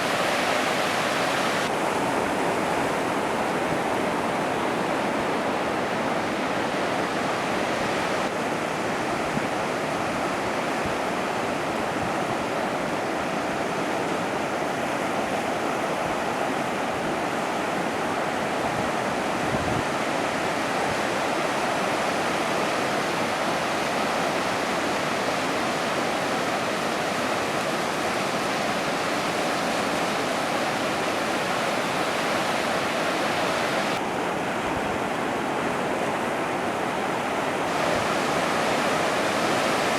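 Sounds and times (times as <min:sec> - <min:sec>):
ocean surf breaking: 0:00.0 - 0:08.4, 0:20.0 - 0:39.9.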